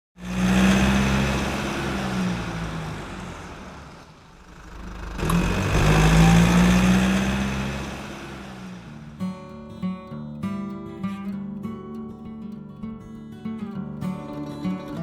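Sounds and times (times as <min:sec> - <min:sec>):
vehicle engine running: 0:00.2 - 0:09.2.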